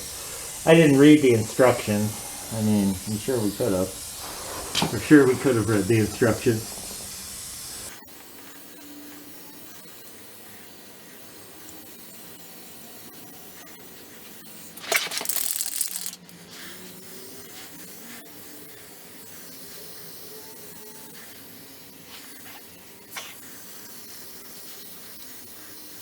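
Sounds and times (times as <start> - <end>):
aerosol can spraying: 0.0 - 8.0, 14.1 - 26.0
rubbing and handling sounds: 3.1 - 7.2.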